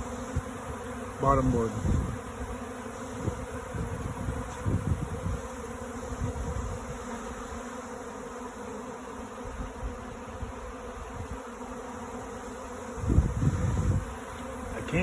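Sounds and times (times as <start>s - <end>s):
wind on microphone: 0.0s - 2.5s, 3.1s - 7.1s, 9.4s - 11.5s, 12.9s - 15.0s
bees buzzing: 0.0s - 15.0s.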